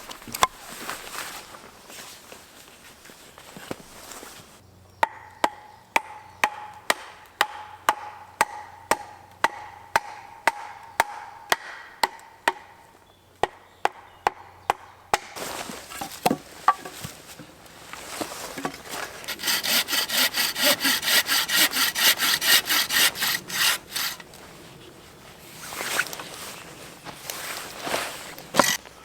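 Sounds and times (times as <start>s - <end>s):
rasping scraping noise: 18.0s - 28.8s.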